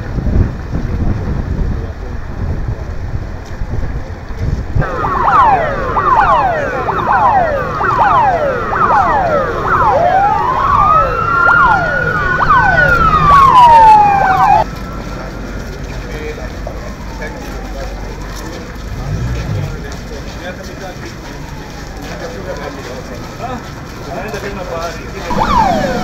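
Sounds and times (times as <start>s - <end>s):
siren wailing: 4.8s - 18.8s, 21.1s - 23.1s, 25.3s - 26.0s
sirens yelping: 4.8s - 24.2s, 25.2s - 26.0s.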